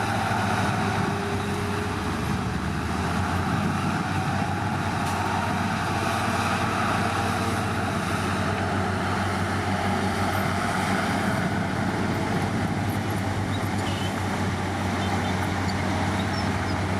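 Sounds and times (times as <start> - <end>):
heavy diesel engine running: 0.0 - 16.9.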